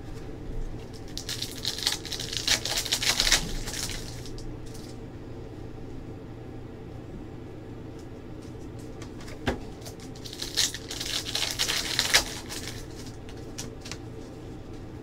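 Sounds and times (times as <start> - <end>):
steady low hum: 0.0 - 15.0
foil wrappers and cards rustling: 0.8 - 5.0, 8.4 - 14.4.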